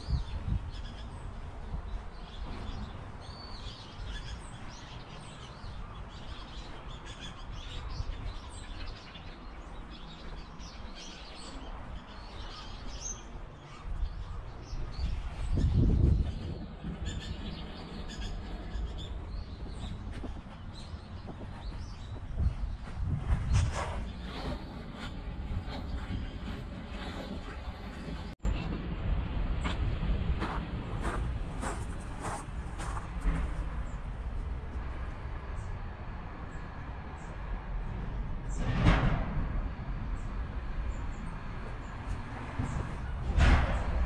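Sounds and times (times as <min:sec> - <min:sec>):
small birds chirping: 0:00.0 - 0:28.4.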